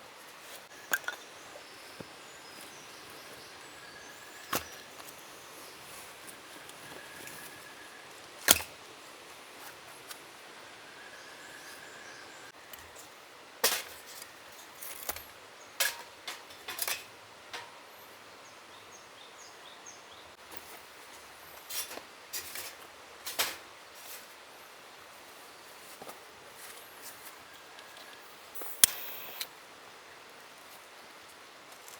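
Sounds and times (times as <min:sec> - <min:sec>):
faint forest hiss: 0:00.0 - 0:31.9
sharp clicks and snaps: 0:28.6 - 0:29.5.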